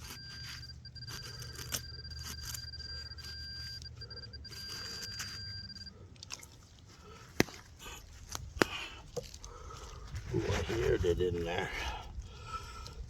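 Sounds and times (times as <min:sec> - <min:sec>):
metal detector electronic tone: 0:00.0 - 0:06.0
digging in wet soil: 0:06.3 - 0:13.0.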